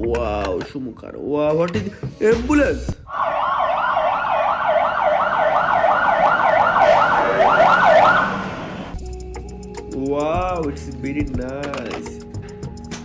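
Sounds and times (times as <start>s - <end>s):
ambulance siren wailing: 3.1s - 9.0s.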